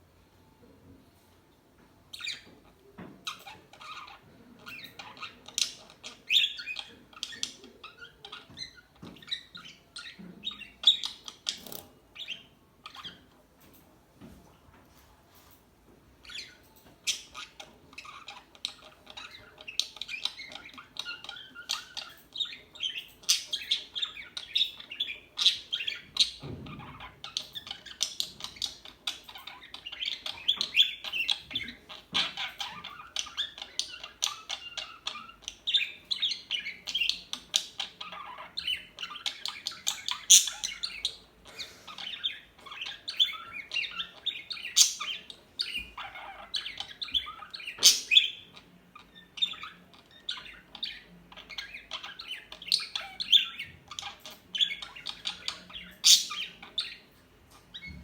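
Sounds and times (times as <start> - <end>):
parakeets chirping and squawking: 2.1 - 13.4, 16.2 - 58.0.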